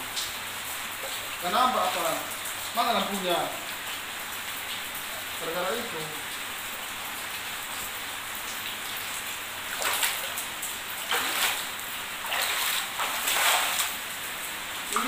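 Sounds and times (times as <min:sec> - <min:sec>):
heavy rain hissing: 0:00.0 - 0:15.0
splashes wading through water: 0:01.0 - 0:02.7, 0:08.6 - 0:15.0.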